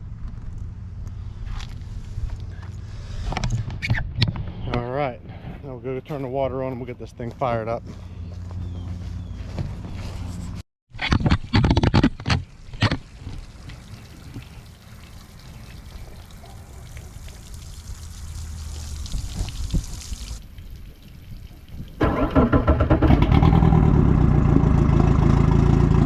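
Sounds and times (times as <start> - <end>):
hose water spraying: 12.6 - 22.5.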